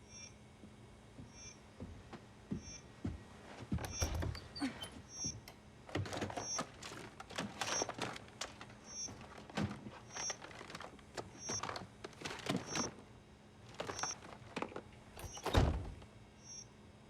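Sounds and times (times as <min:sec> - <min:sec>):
knocks and rustling: 0:03.1 - 0:16.1.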